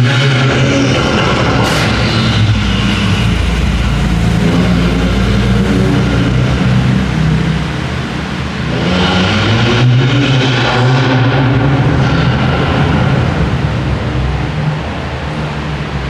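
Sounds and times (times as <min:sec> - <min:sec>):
sports car engines and exhausts: 0:00.0 - 0:16.0.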